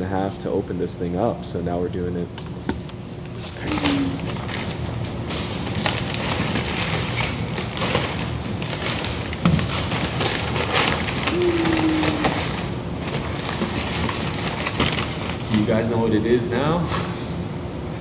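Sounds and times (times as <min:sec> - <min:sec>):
cardboard tearing and crackling: 0:03.4 - 0:15.6.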